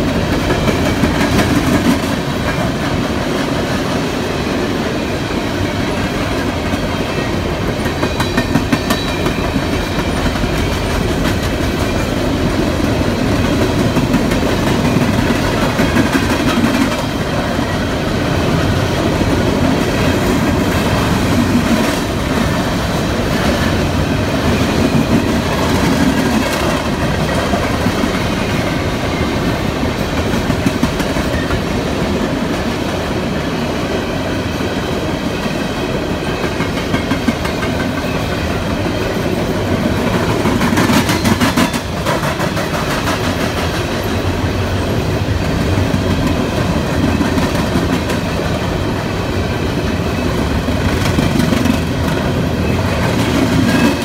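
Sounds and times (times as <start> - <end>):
freight train rumbling past: 0.0 - 54.0
wheels clacking over rail joints: 5.9 - 32.7, 36.2 - 44.4, 49.5 - 54.0.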